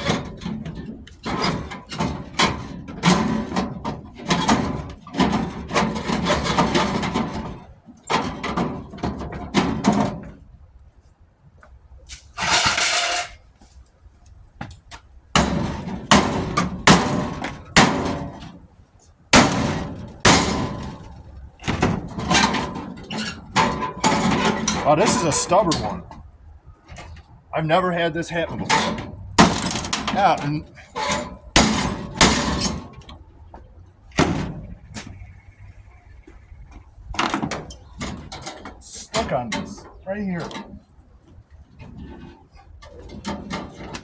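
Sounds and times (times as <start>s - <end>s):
metallic clanking and rattling: 0.0s - 10.6s, 12.3s - 13.4s, 14.7s - 18.7s, 19.3s - 27.4s, 28.3s - 44.0s
metal scrape: 12.1s - 13.5s, 22.1s - 26.1s.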